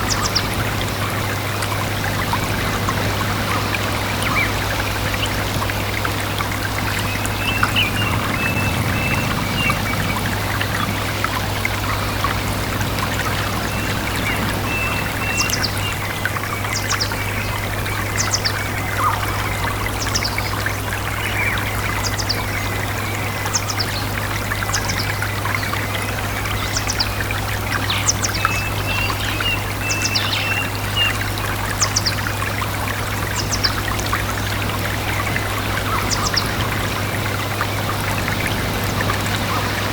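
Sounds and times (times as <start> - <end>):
birds twittering: 0.0 - 39.9
stream trickling and splashing: 0.0 - 39.9.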